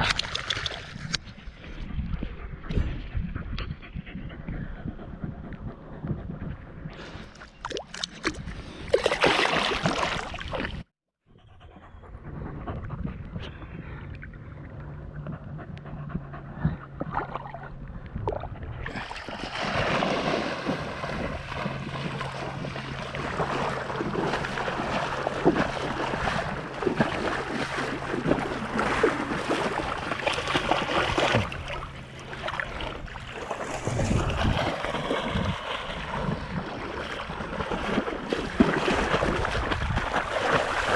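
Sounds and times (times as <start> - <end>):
water splashing around kayak: 7.0 - 10.9, 13.8 - 40.9
steady low hum: 11.5 - 37.8.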